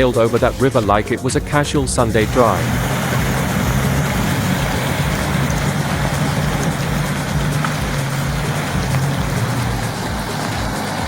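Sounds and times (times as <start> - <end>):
truck engine running: 0.0 - 11.0
loud rushing noise: 2.0 - 11.0.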